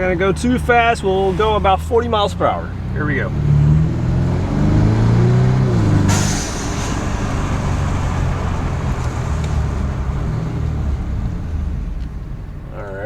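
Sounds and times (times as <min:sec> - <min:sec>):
car engine and exhaust: 0:00.0 - 0:13.0
road noise: 0:00.0 - 0:13.0
short hiss: 0:06.1 - 0:09.1.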